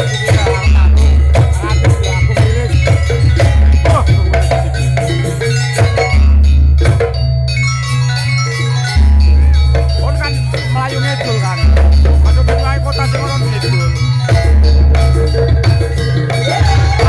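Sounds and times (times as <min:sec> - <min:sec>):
fast drum strokes: 0:00.0 - 0:07.2, 0:09.7 - 0:17.0
deep held bass notes: 0:00.0 - 0:17.0
mallet-struck metal keys ringing: 0:00.0 - 0:17.0.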